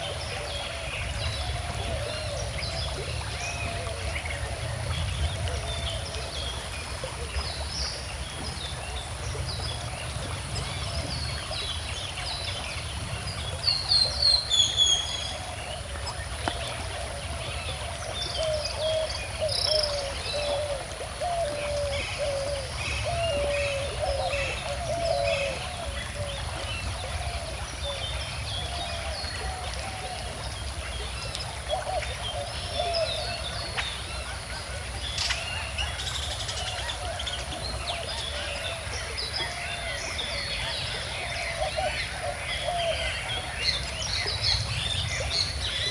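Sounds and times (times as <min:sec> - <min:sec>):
river flowing calmly: 0:00.0 - 0:45.9.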